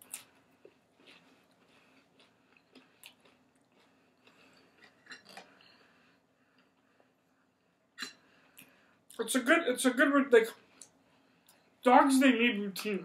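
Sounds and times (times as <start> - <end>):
person chewing: 0.0 - 5.9.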